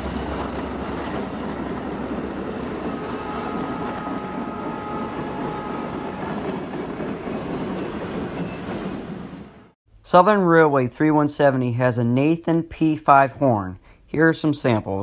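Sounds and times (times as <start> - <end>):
train coaches rumbling past: 0.0 - 9.8.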